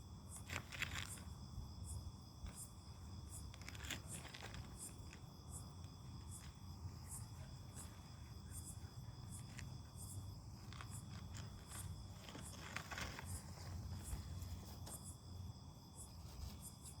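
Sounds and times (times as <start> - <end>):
crickets chirping: 0.0 - 17.0
brief rustle: 10.6 - 15.1.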